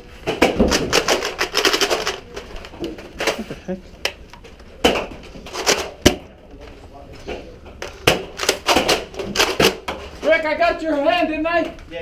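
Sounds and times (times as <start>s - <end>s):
darts hitting things: 4.8s - 6.3s, 7.9s - 10.1s.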